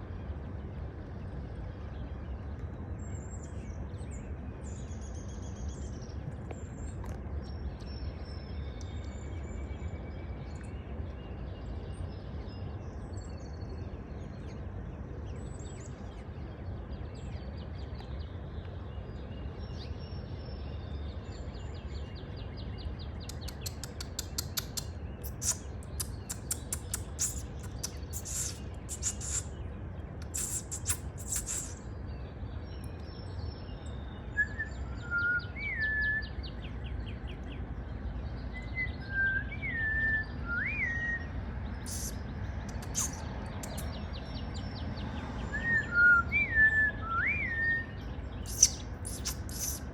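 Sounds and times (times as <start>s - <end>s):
steady low rumble: 0.0s - 35.5s
songbird chirping: 0.3s - 49.9s.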